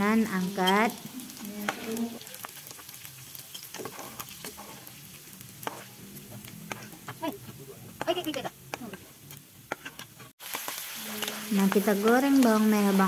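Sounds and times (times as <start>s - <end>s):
fish sizzling in frying oil: 0.0s - 13.0s
metal spatula scraping pan: 0.6s - 10.3s.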